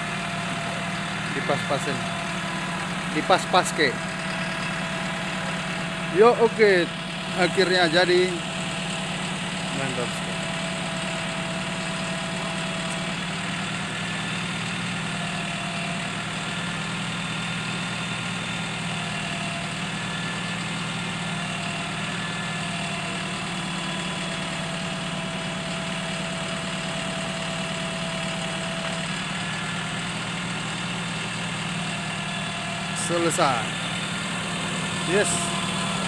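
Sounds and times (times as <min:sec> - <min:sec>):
truck engine idling: 0:00.0 - 0:36.0.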